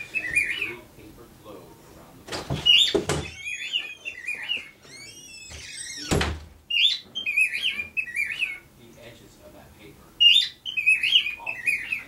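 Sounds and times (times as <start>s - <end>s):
cockatiels chirping and whistling: 0.0s - 0.8s, 2.6s - 8.7s, 10.2s - 12.0s.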